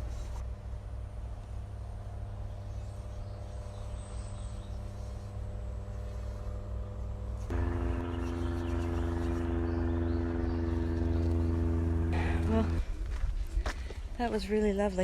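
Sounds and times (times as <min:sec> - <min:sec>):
vehicle engine hum: 0:00.0 - 0:14.1
approaching vehicle engine: 0:04.1 - 0:13.2.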